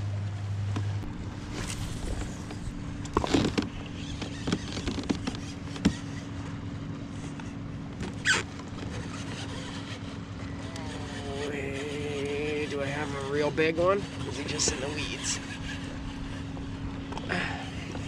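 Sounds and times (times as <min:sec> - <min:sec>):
steady low hum: 0:00.0 - 0:18.0
short water splash: 0:01.0 - 0:04.1
gear knocking and rattling: 0:01.0 - 0:06.3.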